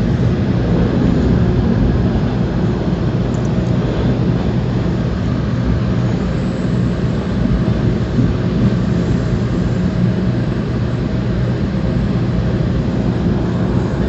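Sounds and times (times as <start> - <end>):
train running low rumble: 0.0 - 14.0.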